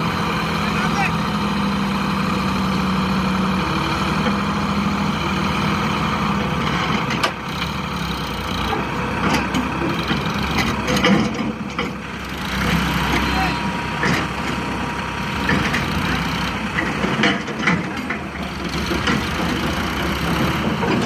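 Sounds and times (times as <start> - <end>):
tractor engine idling: 0.0 - 21.0
knocks and clatter: 9.2 - 12.0, 15.4 - 21.0.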